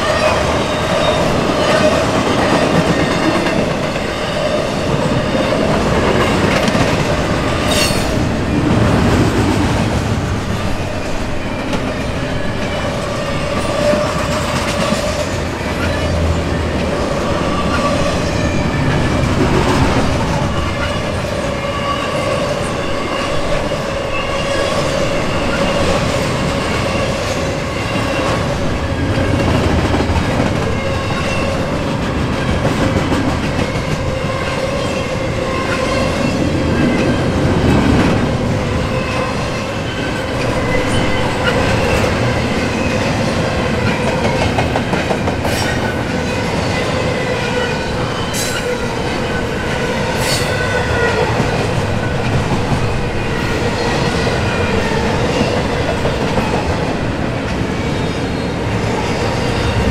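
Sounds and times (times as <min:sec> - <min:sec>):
train wheels rumbling on rail: 0:00.0 - 0:59.9
clickety-clack: 0:05.0 - 0:08.2, 0:13.6 - 0:16.1, 0:29.1 - 0:35.0, 0:43.8 - 0:46.0.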